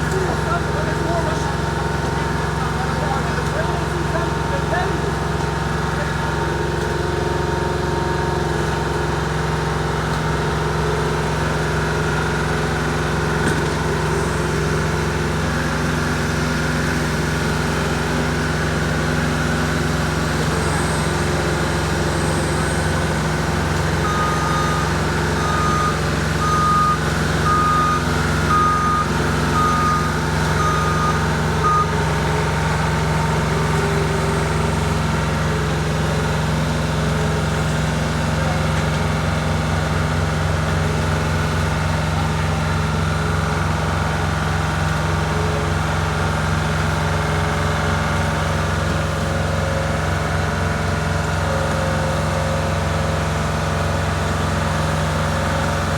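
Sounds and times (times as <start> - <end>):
diesel engine running: 0.0 - 55.9
backup alarm beeping: 24.0 - 32.0.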